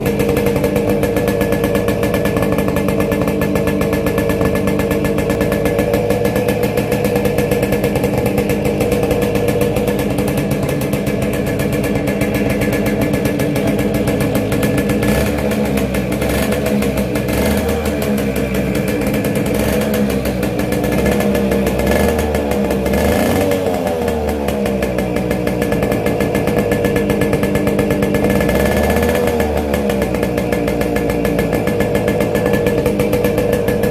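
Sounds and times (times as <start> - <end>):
deep rumble: 0.0 - 21.2
two-stroke engine running: 0.0 - 33.9.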